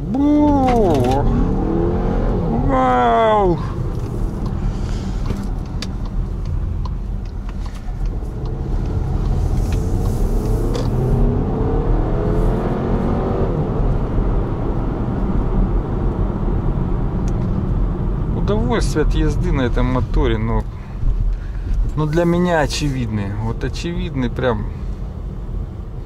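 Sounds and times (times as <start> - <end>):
car engine accelerating hard: 0.0 - 19.8
road and tyre noise: 0.0 - 26.0.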